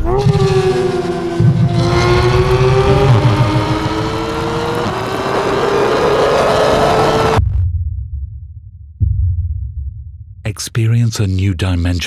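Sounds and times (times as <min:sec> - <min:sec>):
sports car accelerating hard: 0:00.0 - 0:07.4
low rumble: 0:00.0 - 0:10.4.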